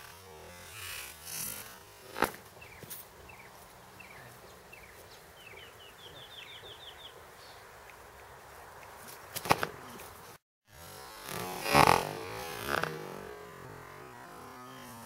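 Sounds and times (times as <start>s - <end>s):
songbird chirping: 2.5s - 10.3s.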